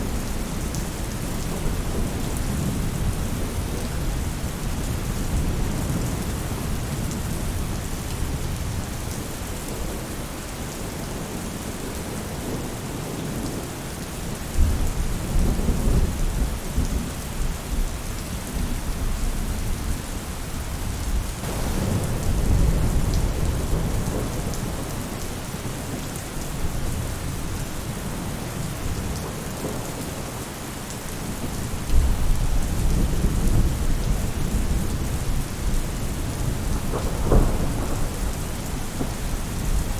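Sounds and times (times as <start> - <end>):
heavy rain drumming on a roof: 0.0 - 39.9
low rolls of thunder: 21.4 - 26.0, 31.3 - 39.9.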